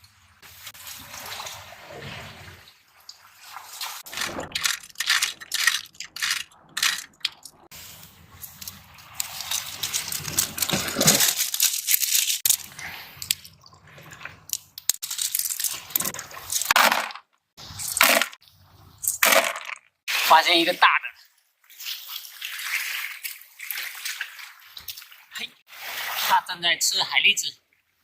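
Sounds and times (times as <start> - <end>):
water rushing and washing: 0.0 - 11.4, 21.6 - 26.5
snail shells crunching and clinking: 4.1 - 7.7, 8.5 - 13.5, 14.4 - 17.2, 19.0 - 19.9.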